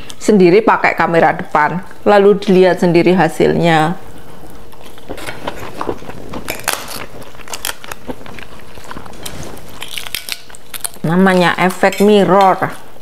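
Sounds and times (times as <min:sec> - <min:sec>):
crunching crisp crackers: 0:04.2 - 0:12.8.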